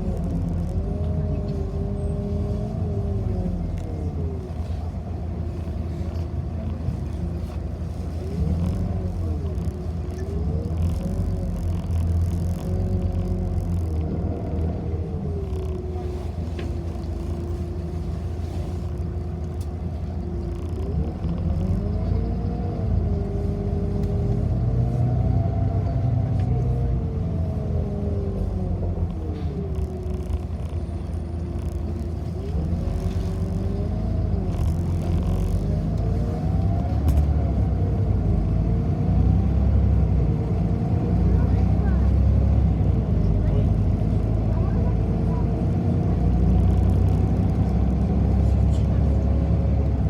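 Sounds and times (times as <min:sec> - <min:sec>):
bus engine rumble: 0:00.0 - 0:50.0
bus whine: 0:00.0 - 0:50.0
faint clicks: 0:18.8 - 0:22.2, 0:28.9 - 0:38.1.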